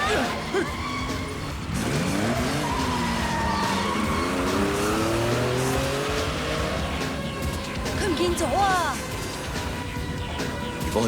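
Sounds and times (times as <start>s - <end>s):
tyres skidding: 0.0s - 11.0s
car engine revving hard: 1.4s - 7.5s.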